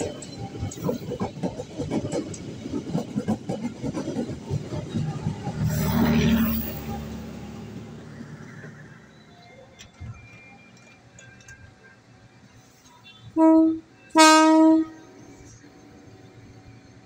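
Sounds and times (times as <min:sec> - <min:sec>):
train wheels clacking over rail joints: 0:00.0 - 0:06.6.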